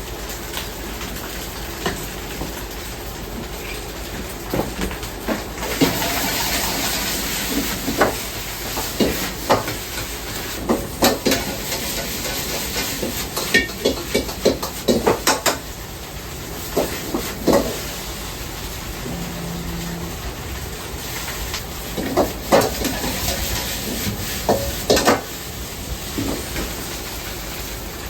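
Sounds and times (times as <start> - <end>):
hiss of steam or frying: 5.5 - 20.1, 20.8 - 28.0
clanks of pots and utensils: 8.8 - 15.6.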